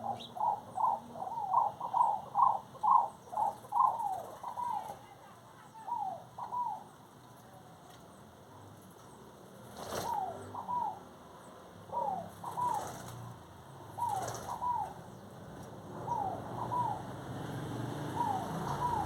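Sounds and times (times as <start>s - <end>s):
bird calling falling notes: 14.0s - 15.1s, 17.9s - 19.0s.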